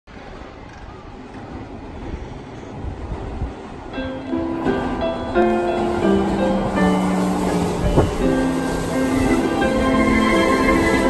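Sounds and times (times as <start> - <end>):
train wheels rumbling on rails: 0.1 - 11.0
music with held notes: 4.0 - 11.0.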